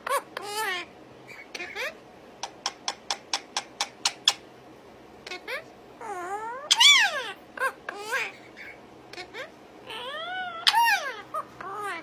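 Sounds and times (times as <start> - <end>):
pet animal chirping: 0.1 - 4.4, 5.3 - 12.0
pet animal meowing: 6.0 - 7.3, 9.9 - 12.0.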